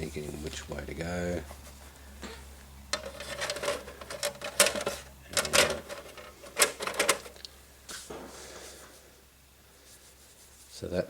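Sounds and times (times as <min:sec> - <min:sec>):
plastic parts clicking and clacking: 0:02.9 - 0:07.5.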